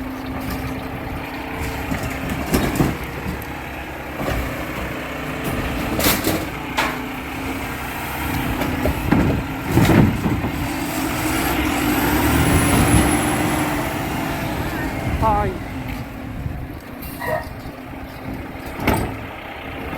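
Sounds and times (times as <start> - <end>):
garbage truck engine running: 0.0 - 19.9
metal clanks and bangs: 0.2 - 7.6, 8.2 - 11.4, 16.9 - 19.4.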